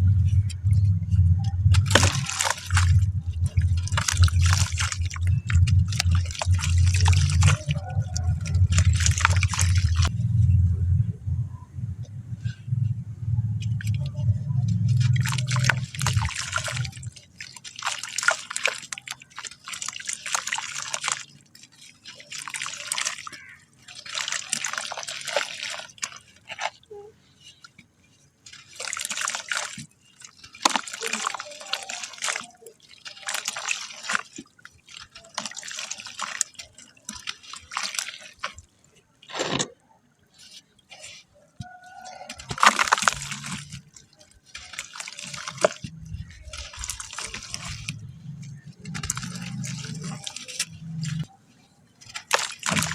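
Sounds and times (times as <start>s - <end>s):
low hum: 0.0s - 17.3s
wet sand crunching by hand: 0.2s - 10.1s, 13.8s - 21.4s, 41.9s - 51.3s.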